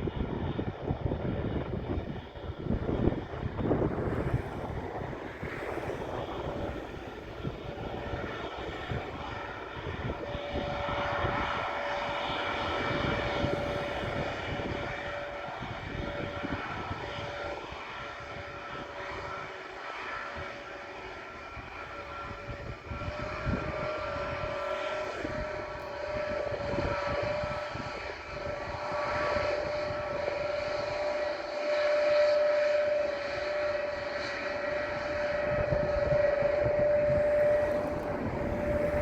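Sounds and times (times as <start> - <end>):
jet engine whine: 0.0 - 39.0.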